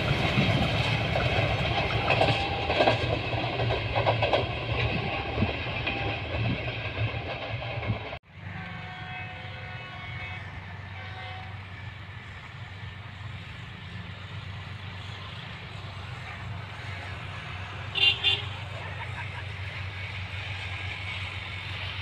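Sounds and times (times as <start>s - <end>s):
locomotive engine rumble: 0.0s - 22.0s
train horn toots: 1.6s - 3.1s, 4.8s - 6.5s, 7.7s - 12.4s, 16.2s - 18.8s.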